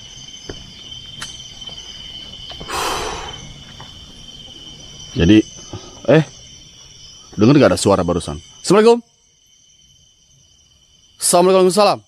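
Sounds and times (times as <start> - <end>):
insects chirring: 0.0 - 12.0
breathy rush of noise: 2.6 - 3.6.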